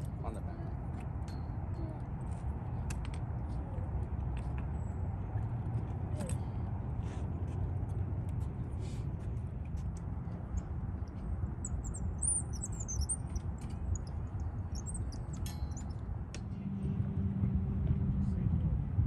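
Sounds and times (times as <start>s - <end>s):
steady low rumble: 0.0s - 19.0s
small bird chirping: 10.4s - 16.0s.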